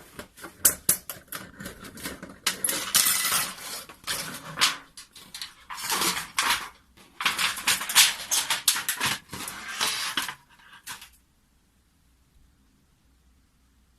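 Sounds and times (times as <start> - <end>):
metal sheets and rods clattering: 2.5 - 11.1.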